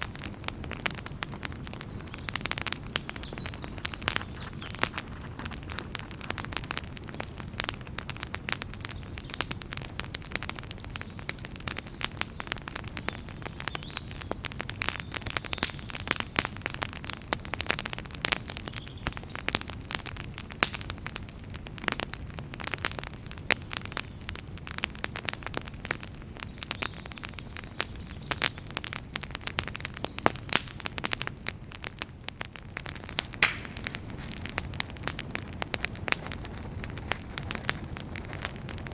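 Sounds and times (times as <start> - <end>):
fire crackling and popping: 0.0 - 38.9
low rumble of burning: 0.0 - 38.9.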